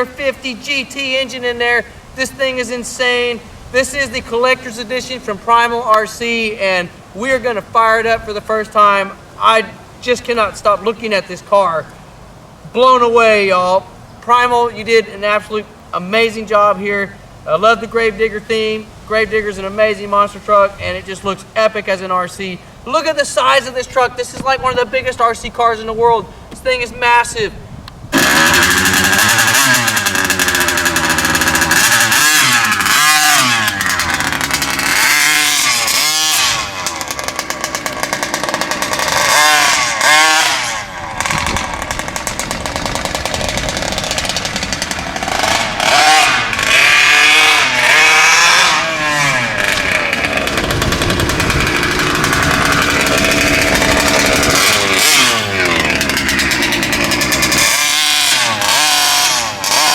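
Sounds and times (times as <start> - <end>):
two-stroke engine revving: 28.1 - 59.9.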